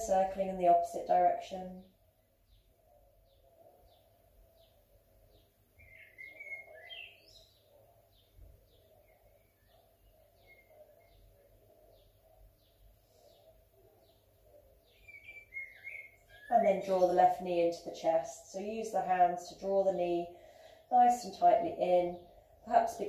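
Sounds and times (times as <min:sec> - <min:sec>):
varied birdsong phrases: 0:00.0 - 0:23.0
high bird chirp: 0:02.5 - 0:17.0.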